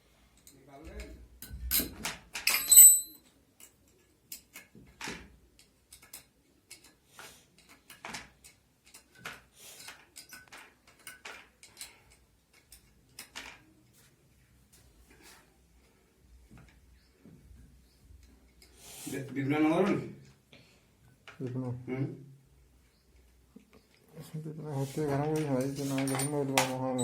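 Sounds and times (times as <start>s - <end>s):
metal tools clicking and knocking: 0.3s - 13.9s, 25.1s - 27.0s.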